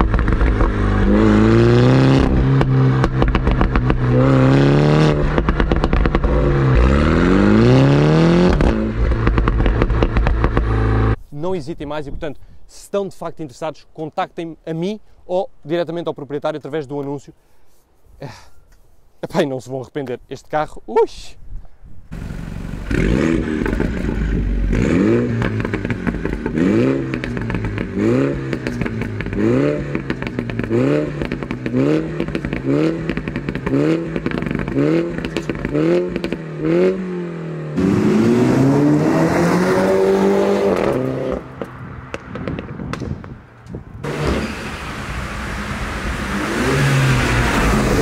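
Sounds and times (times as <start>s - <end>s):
car driving: 0.0s - 11.2s, 22.1s - 48.0s
car engine revving: 0.0s - 11.2s, 22.1s - 43.0s, 44.0s - 48.0s
exhaust popping: 0.0s - 11.2s, 22.1s - 48.0s.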